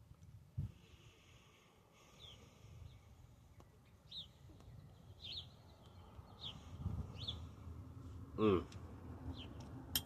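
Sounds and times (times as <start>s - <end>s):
bird chirping: 2.0s - 7.8s, 9.2s - 9.8s.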